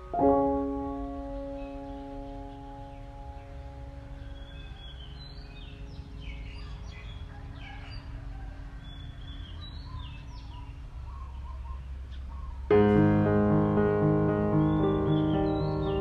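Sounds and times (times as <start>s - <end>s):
held music chord: 0.0s - 6.9s, 12.7s - 16.0s
small birds chirping: 0.0s - 16.0s.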